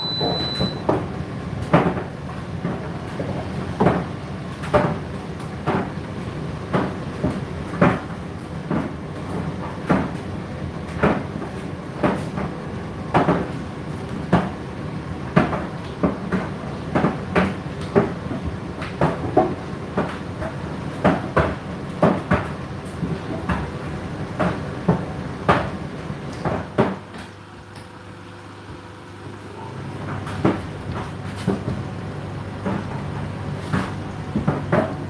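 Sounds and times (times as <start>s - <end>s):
laundry knocking in a tumbling drum: 32.5s - 35.0s.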